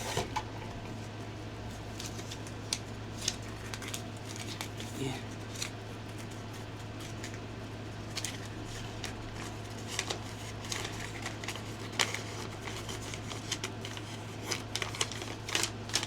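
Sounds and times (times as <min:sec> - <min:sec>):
low electrical hum: 0:00.0 - 0:16.0
paper and card rustling: 0:01.7 - 0:07.4, 0:08.0 - 0:16.0.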